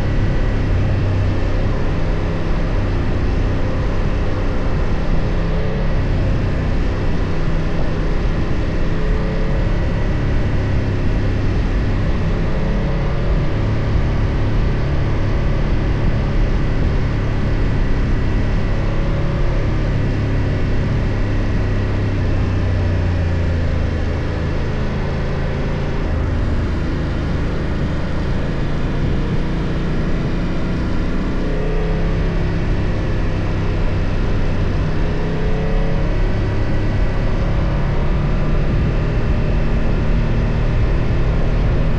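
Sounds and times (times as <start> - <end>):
motorcycle engine running: 0.0 - 41.9
road noise: 0.0 - 41.9.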